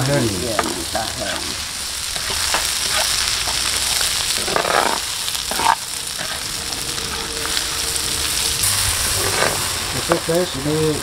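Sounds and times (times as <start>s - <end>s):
beans sizzling in a wok: 0.0s - 11.0s
metal spatula scraping pan: 2.2s - 10.3s.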